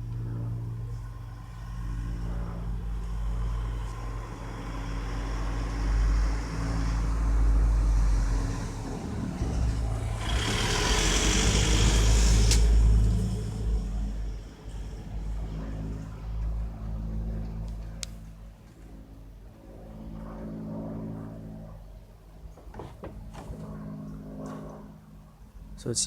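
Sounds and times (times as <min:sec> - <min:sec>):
engine droning: 0:00.0 - 0:26.0
loud rushing hiss: 0:09.5 - 0:13.7.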